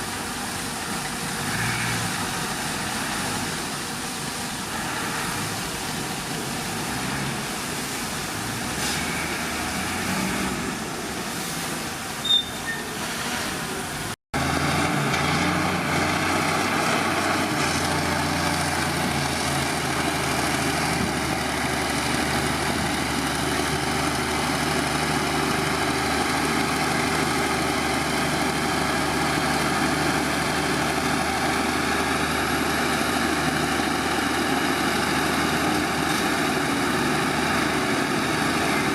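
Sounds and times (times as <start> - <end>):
diesel earthmoving machinery running: 13.5 - 38.9.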